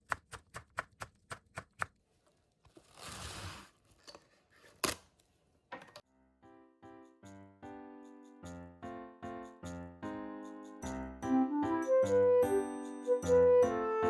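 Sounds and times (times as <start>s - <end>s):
cut pieces sliding: 2.2s - 6.0s.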